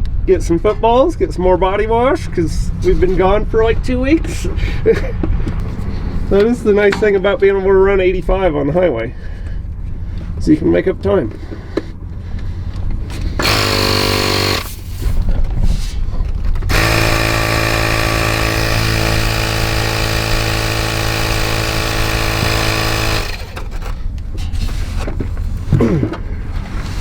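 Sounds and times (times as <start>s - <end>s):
power tool buzzing: 13.1s - 15.1s, 16.7s - 24.0s.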